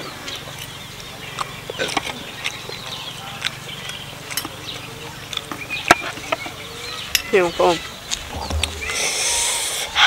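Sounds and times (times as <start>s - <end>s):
person chewing: 1.3s - 6.2s.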